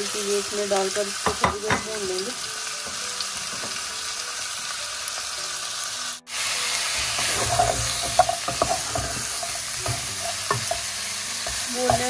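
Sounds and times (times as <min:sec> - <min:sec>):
chicken sizzling in a pan: 0:00.0 - 0:12.0
wooden spoon stirring and scraping: 0:07.0 - 0:12.0.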